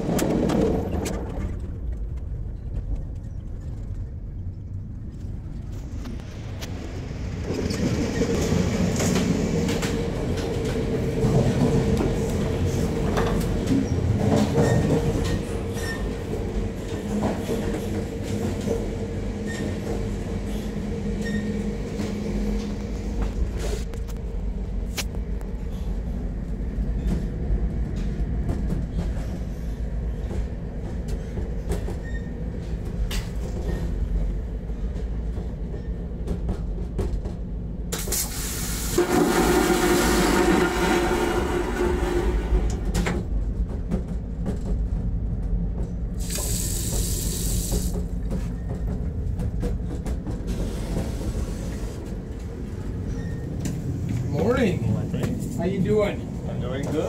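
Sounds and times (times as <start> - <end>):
train rumbling on rails: 0.0 - 57.0
train wheels clicking: 26.9 - 56.1.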